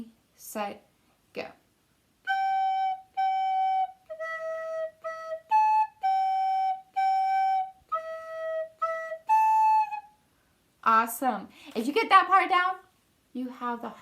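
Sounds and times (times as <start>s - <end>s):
recorder playing melody: 2.2s - 10.1s.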